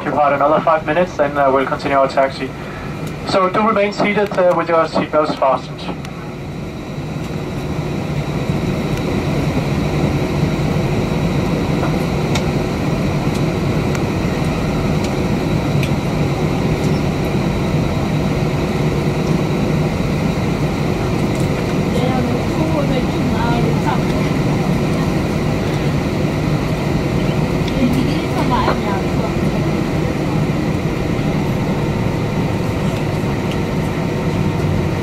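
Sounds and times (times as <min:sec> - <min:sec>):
aircraft engines idling: 0:00.0 - 0:35.0
rush of cabin air: 0:00.0 - 0:35.0.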